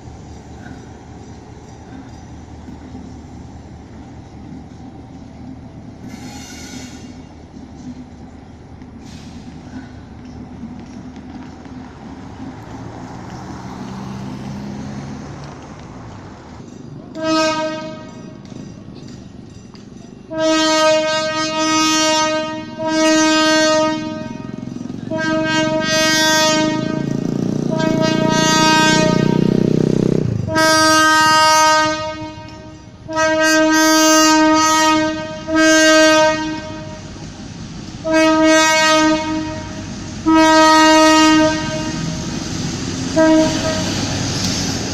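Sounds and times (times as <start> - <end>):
train engine rumble: 0.0 - 44.9
train horn blasts: 6.1 - 7.3, 17.1 - 18.4, 20.3 - 29.8, 30.4 - 37.2, 38.0 - 42.3, 43.1 - 44.2.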